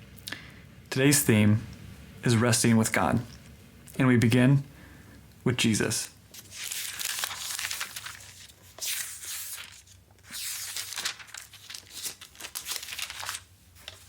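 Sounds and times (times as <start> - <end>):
paper crinkling and rustling: 5.8 - 14.0.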